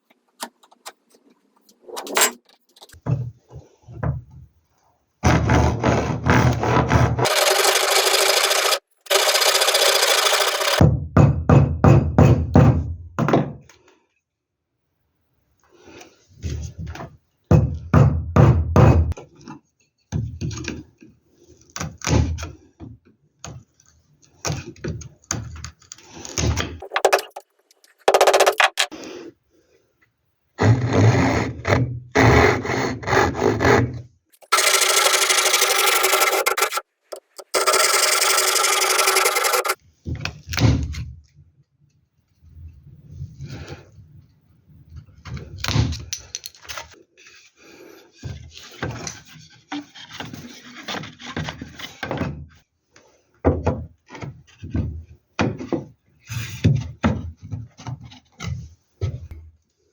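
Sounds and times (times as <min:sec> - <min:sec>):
wood being rasped by hand: 0:05.3 - 0:10.8, 0:28.1 - 0:28.9, 0:34.4 - 0:39.8
power tool running: 0:07.2 - 0:10.8, 0:34.4 - 0:39.8.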